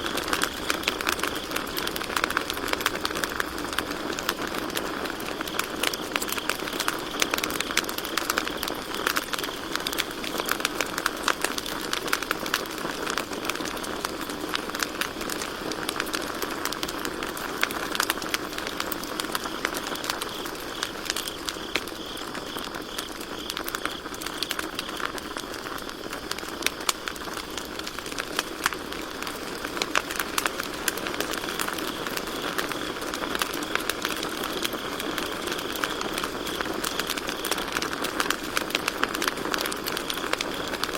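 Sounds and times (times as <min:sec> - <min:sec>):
campfire crackling: 0:00.0 - 0:40.9
crickets chirping: 0:00.0 - 0:40.9.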